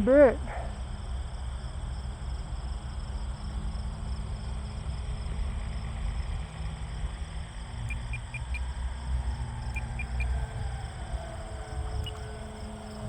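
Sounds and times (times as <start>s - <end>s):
faint electric motor whine: 0.8s - 13.0s
wind rumbling on microphone: 7.6s - 13.0s.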